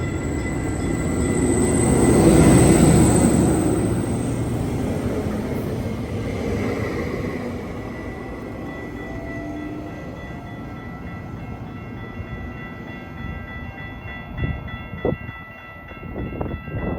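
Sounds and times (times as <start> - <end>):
steady high tone: 0.0 - 16.0
train rumbling on track: 0.0 - 16.9.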